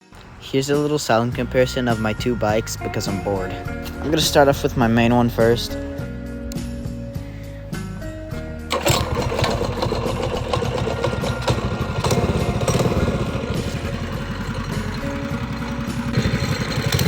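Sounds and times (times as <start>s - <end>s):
background music: 0.0s - 17.0s
small single-cylinder engine running: 8.7s - 17.0s.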